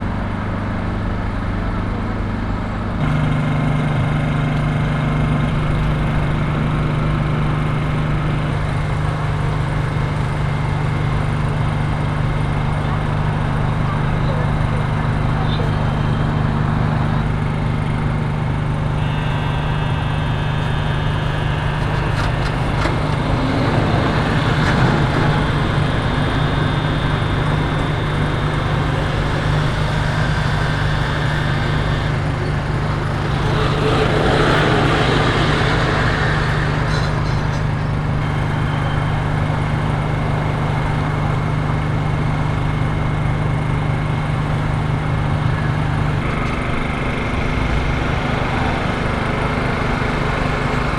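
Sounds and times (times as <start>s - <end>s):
street traffic: 0.0s - 50.9s
motor humming: 15.6s - 41.3s.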